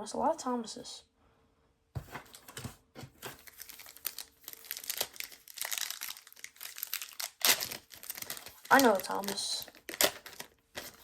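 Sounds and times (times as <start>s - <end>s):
wrapper crinkling and tearing: 3.1s - 11.0s.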